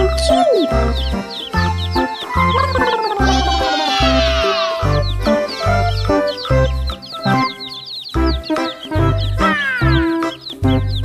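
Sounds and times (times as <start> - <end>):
upbeat children's music: 0.0 - 11.0
bright high falling notes: 2.5 - 4.8.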